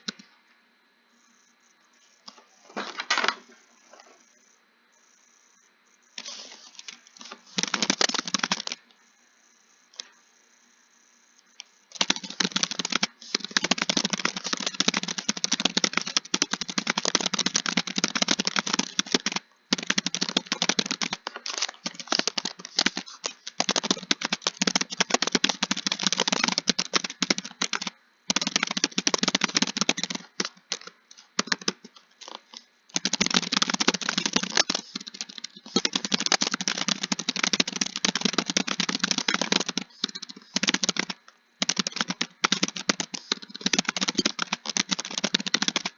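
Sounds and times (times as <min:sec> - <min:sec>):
fast keyboard typing: 0:06.2 - 0:08.8, 0:11.9 - 0:45.9.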